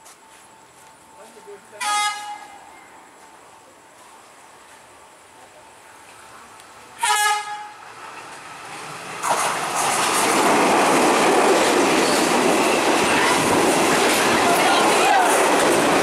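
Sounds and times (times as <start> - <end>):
train rumbling past: 0.2 - 16.0
train horn blast: 1.8 - 2.6, 7.0 - 7.8.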